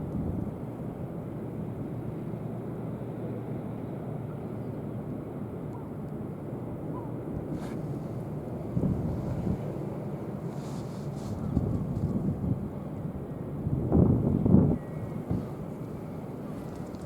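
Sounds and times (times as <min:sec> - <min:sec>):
ferry engines rumbling: 0:06.9 - 0:13.5.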